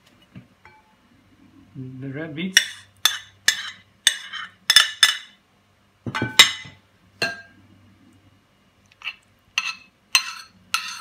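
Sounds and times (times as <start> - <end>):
spoon clinking against bowl: 9.0 - 11.0.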